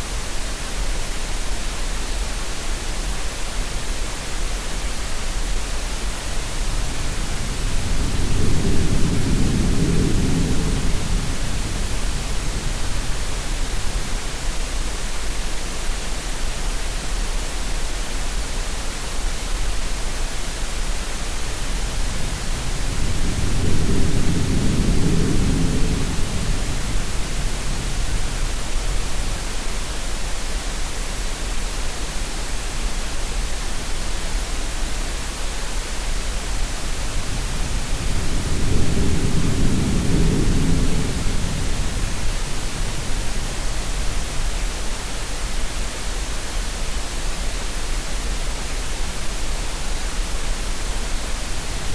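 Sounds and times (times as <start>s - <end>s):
steady noise hiss: 0.0s - 51.9s
surf swells: 6.2s - 14.9s, 20.4s - 30.6s, 35.1s - 51.9s.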